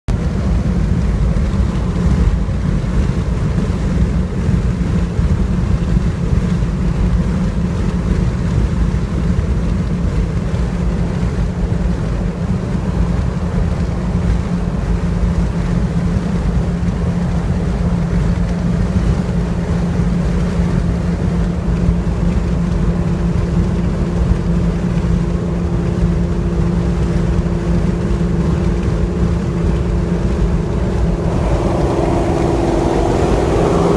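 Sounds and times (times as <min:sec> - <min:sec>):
car exhaust low tone: 0:00.1 - 0:33.9
wind noise: 0:00.1 - 0:33.9
higher steady tone: 0:27.2 - 0:33.9.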